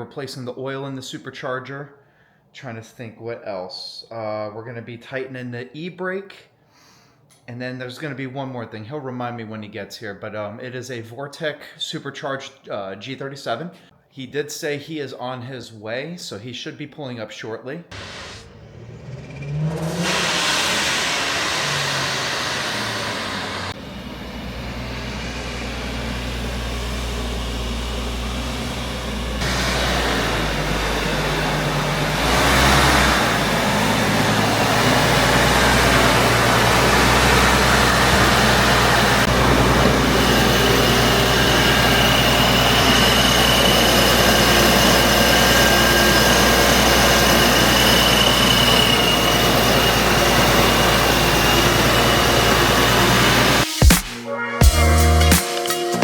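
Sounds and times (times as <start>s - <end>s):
car engine running: 17.9s - 53.6s
high whine: 17.9s - 56.0s.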